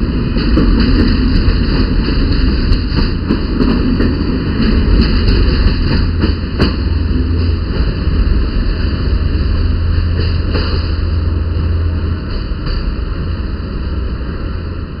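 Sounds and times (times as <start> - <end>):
diesel train rumbling: 0.0 - 15.0.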